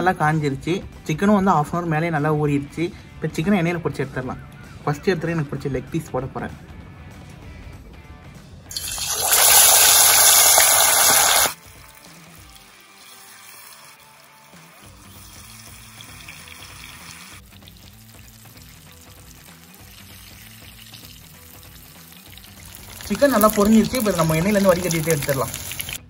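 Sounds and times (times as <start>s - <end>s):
quiet background music: 0.0s - 26.0s
chicken sizzling in hot oil: 8.7s - 26.0s.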